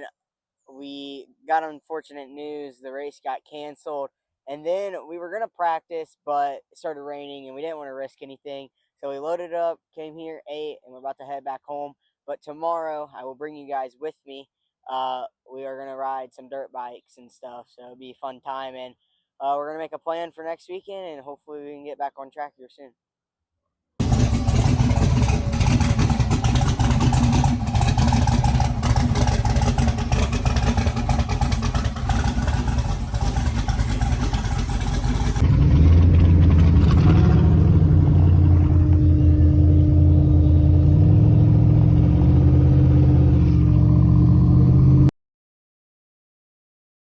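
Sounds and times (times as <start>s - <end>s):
vehicle engine running loud: 24.0s - 45.1s.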